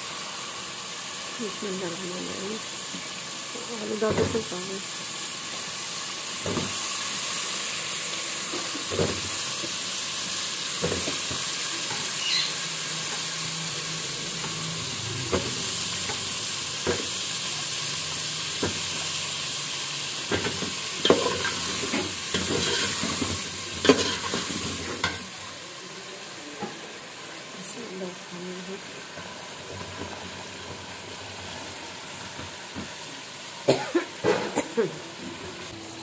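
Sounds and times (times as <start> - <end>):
masala sizzling in a pot: 0.0 - 36.0
spoon stirring and scraping pot: 22.3 - 25.2.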